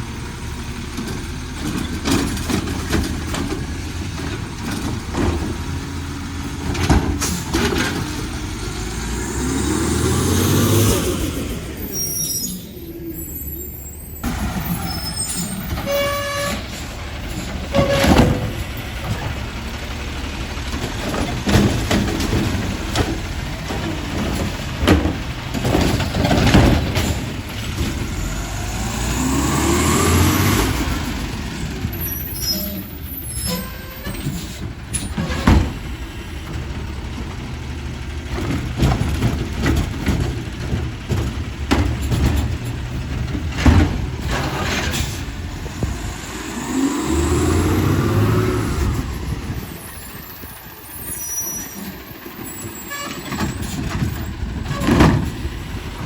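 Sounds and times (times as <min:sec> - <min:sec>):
garbage truck diesel engine: 0:00.0 - 0:56.0
metal clanks and knocks: 0:00.9 - 0:08.7, 0:14.2 - 0:19.7, 0:20.7 - 0:28.2, 0:31.7 - 0:37.4, 0:38.2 - 0:46.1, 0:51.8 - 0:56.0.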